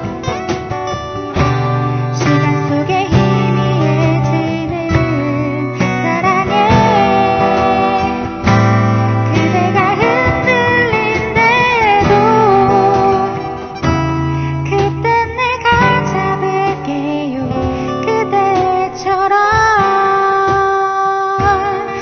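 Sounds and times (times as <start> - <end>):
acoustic guitar chords: 0.0 - 22.0
person singing: 1.3 - 22.0.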